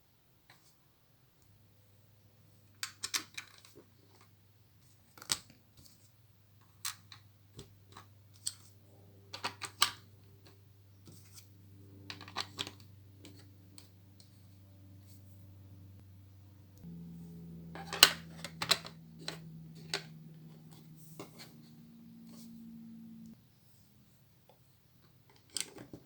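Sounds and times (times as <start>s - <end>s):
low steady hum: 5.9s - 26.0s.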